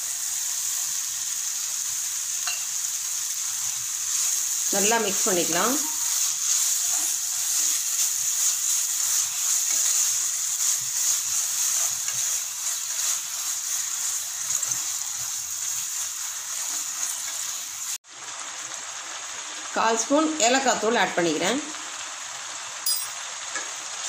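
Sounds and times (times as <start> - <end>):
food sizzling in a pan: 0.0 - 24.0
spatula scraping a pan: 4.0 - 15.8.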